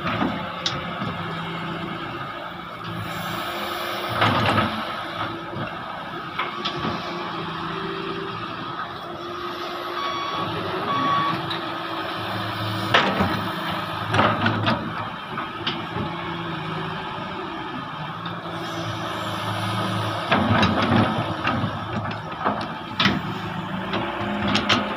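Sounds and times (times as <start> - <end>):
diesel machinery running: 0.0 - 24.9
backup alarm beeps: 10.0 - 11.4.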